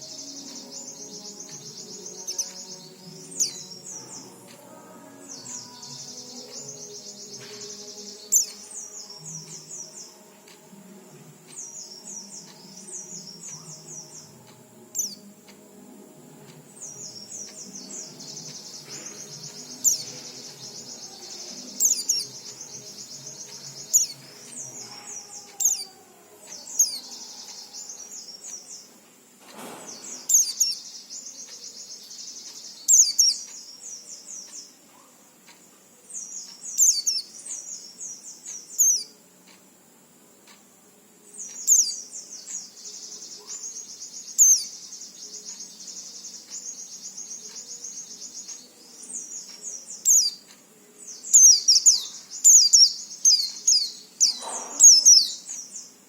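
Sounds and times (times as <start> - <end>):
bird rapid high twittering: 16.8 - 25.9, 26.5 - 28.9, 29.8 - 33.8, 36.4 - 39.2, 41.4 - 50.5, 51.1 - 56.0.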